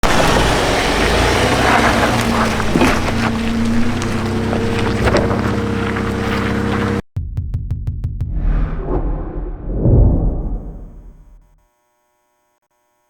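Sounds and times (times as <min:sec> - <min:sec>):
truck engine running: 0:00.0 - 0:08.2.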